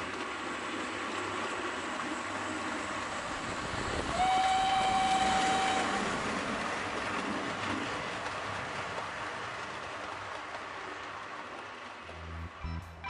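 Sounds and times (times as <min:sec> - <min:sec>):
train clattering: 0:00.0 - 0:13.0
train whistle blowing: 0:04.1 - 0:06.0.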